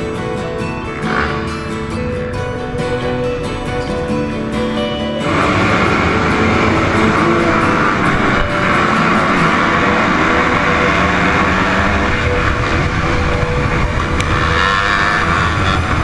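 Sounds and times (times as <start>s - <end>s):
motocross bike engine running: 5.2s - 16.0s.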